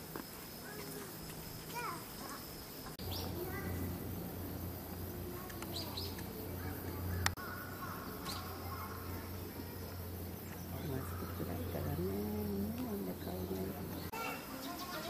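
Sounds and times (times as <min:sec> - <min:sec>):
low steady hum: 0:00.1 - 0:14.1
small birds chirping: 0:00.1 - 0:15.0.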